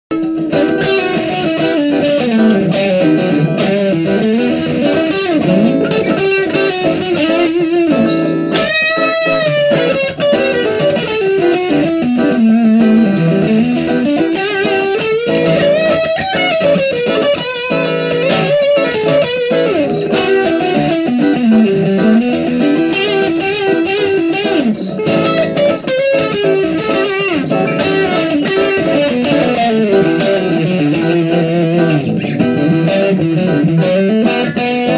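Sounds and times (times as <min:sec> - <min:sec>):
guitar accompaniment: 0:00.1 - 0:34.9
sliding guitar melody: 0:00.1 - 0:34.9.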